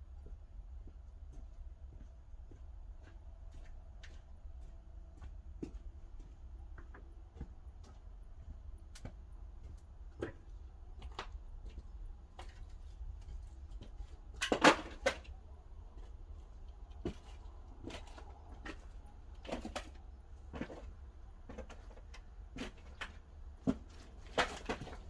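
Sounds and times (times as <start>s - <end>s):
firewood pops and cracks: 22.8s - 25.0s.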